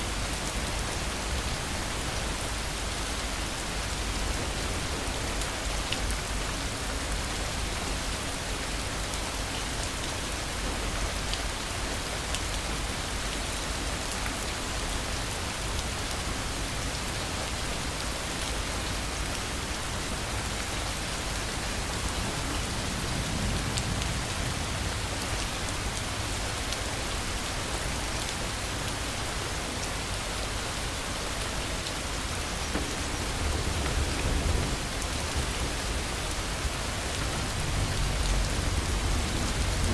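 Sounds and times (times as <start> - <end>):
torrential rain: 0.0 - 39.9
low rumble of thunder: 32.3 - 39.9.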